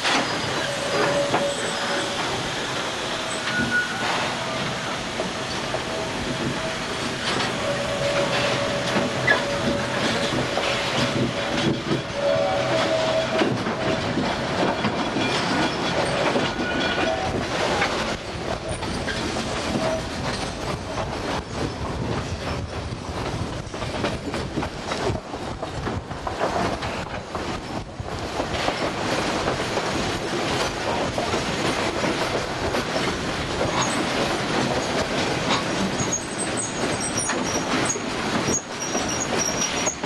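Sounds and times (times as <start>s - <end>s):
high wheel squeal: 0.0s - 14.0s
train wheels clattering on rails: 0.0s - 40.0s.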